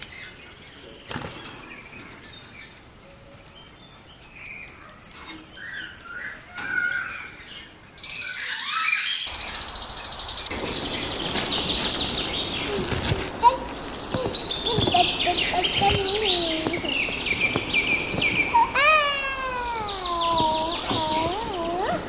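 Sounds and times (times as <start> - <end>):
lovebirds chirping: 0.0 - 22.0.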